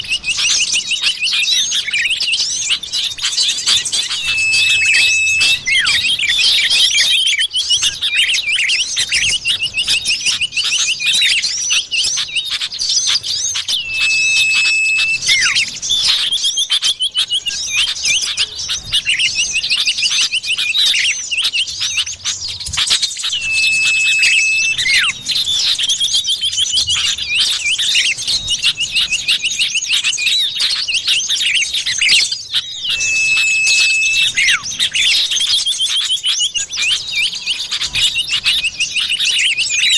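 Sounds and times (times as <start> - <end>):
high bird chirping: 0.0 - 39.9
long level whistle: 3.0 - 11.4, 13.5 - 16.8, 22.8 - 30.0, 32.0 - 36.0.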